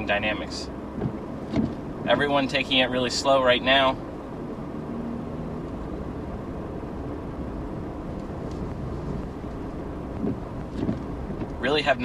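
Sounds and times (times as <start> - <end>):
in-cabin road and engine rumble: 0.0 - 12.0.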